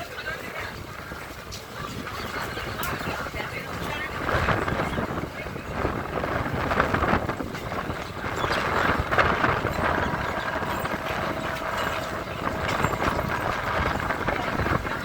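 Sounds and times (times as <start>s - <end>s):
train wheels rumbling on rail: 0.0s - 15.0s
wind noise: 0.6s - 15.0s
clacks and rattles: 1.3s - 15.0s.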